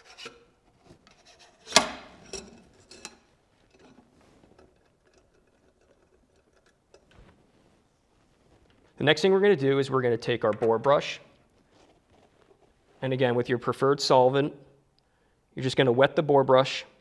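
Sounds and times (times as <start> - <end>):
faint handling noise: 0.0 - 9.1, 10.2 - 13.2.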